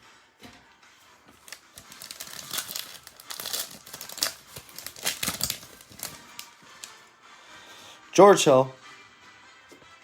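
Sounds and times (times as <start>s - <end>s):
cards being handled: 1.3s - 7.0s
card pack wrapper crinkling: 1.4s - 7.0s.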